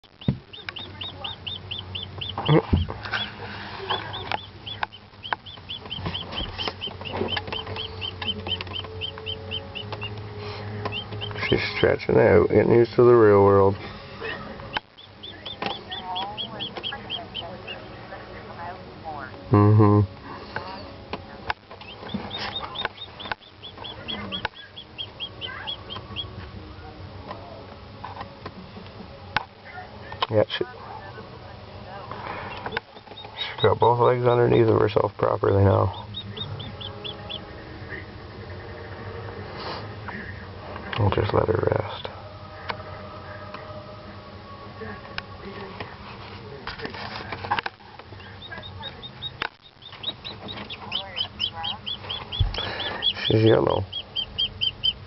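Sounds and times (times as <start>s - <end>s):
chick peeping: 0.0s - 12.9s, 13.6s - 18.6s, 20.6s - 26.5s, 32.0s - 39.2s, 47.5s - 55.0s
steady low hum: 0.0s - 55.0s.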